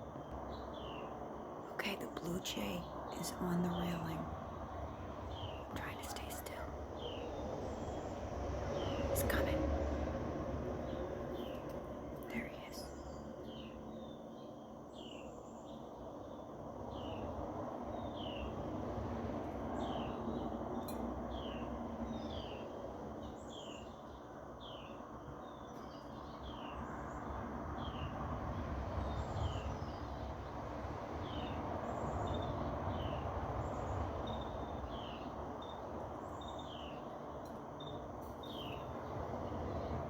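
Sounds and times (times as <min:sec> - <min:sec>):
highway traffic rumble: 0:00.0 - 0:40.0
songbirds chirping: 0:00.0 - 0:40.0.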